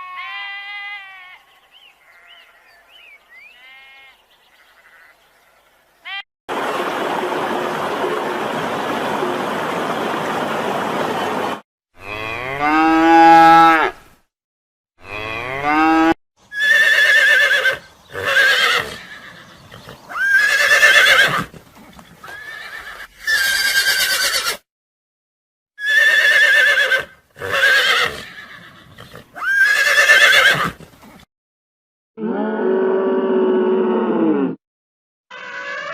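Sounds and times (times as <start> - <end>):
cattle mooing: 12.0 - 14.0, 15.0 - 16.2.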